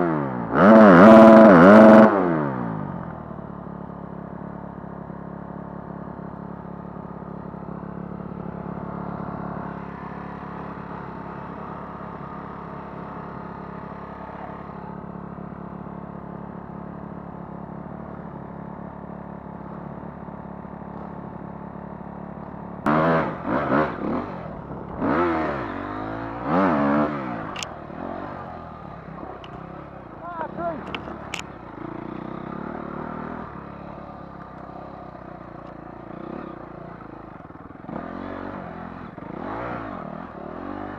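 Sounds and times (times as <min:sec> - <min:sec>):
dirt bike engine revving: 0:00.0 - 0:02.9, 0:22.8 - 0:40.9.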